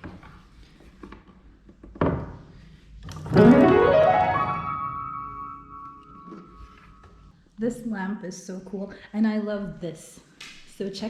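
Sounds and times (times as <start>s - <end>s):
piano chord: 3.3s - 7.0s
piano glissando: 3.3s - 7.0s.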